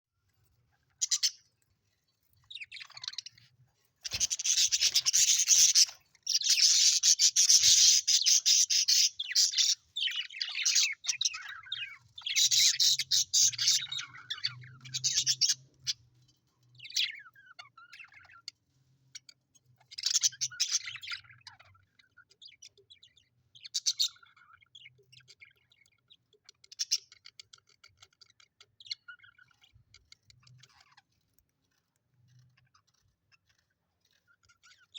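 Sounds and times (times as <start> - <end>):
budgerigars chattering and chirping: 0.8 - 1.6, 2.4 - 34.9.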